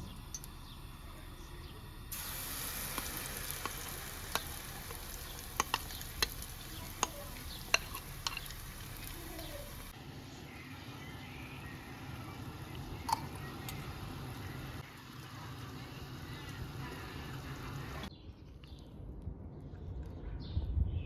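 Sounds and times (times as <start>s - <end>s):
food sizzling in a frying pan: 1.8s - 10.0s, 10.8s - 18.1s.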